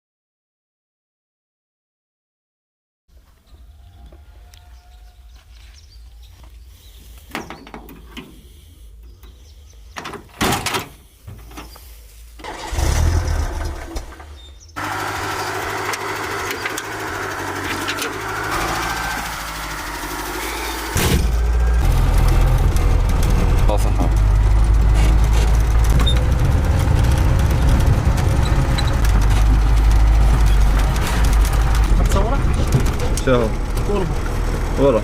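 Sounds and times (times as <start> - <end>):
vehicle engine running: 11.8 - 35.0
low thud: 21.0 - 21.4.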